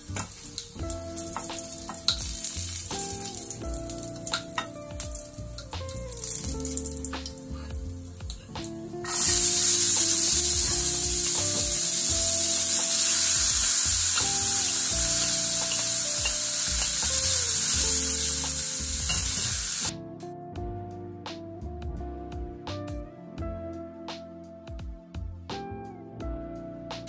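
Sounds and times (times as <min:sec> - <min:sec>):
vegetables sizzling in frying pan: 0:00.0 - 0:05.4, 0:09.0 - 0:19.9.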